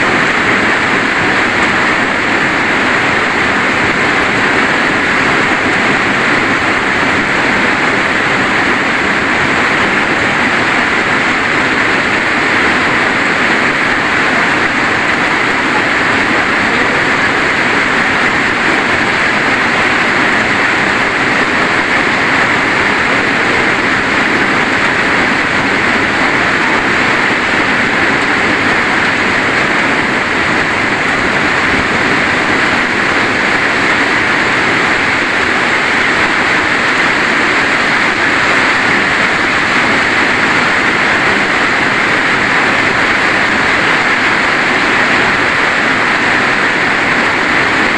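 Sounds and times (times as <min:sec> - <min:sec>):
rain falling: 0:00.0 - 0:47.9.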